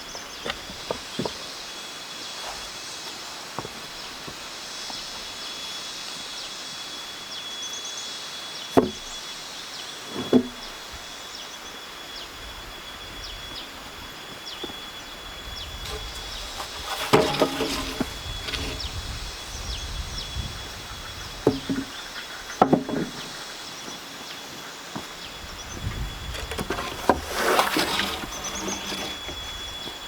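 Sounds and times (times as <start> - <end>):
sharp wooden knocks: 21.4 - 22.0, 22.6 - 23.2.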